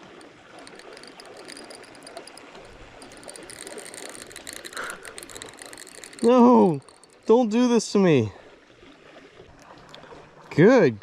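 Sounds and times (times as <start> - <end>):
fishing reel clicking: 0.0 - 8.1
river water rushing: 0.0 - 10.9.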